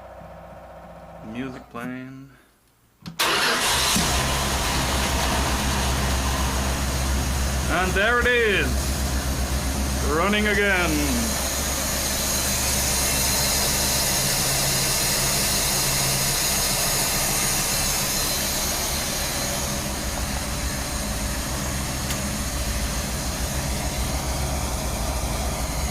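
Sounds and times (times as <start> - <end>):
pickup engine idling: 0.0 - 1.4, 3.2 - 25.9.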